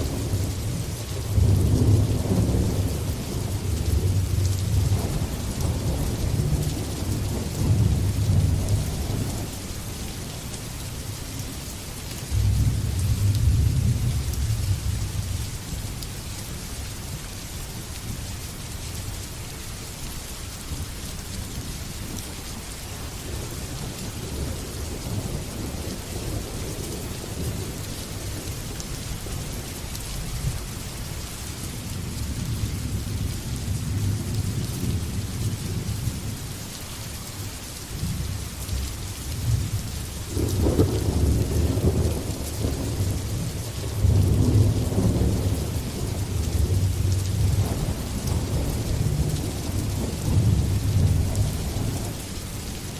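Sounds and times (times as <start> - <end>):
thunder rumbling: 0.0 - 9.6, 12.3 - 15.4, 39.4 - 52.2
heavy rain: 0.0 - 52.9.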